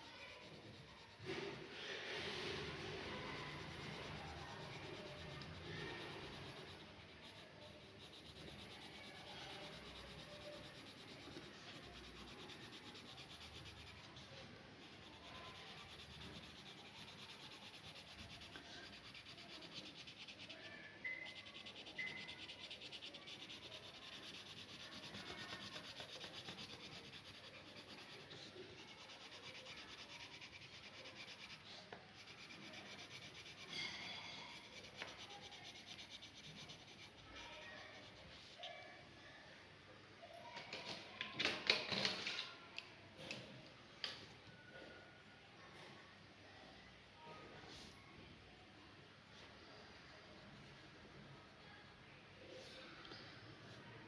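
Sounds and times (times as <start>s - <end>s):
drawing tool scratching on paper: 0.0s - 38.6s.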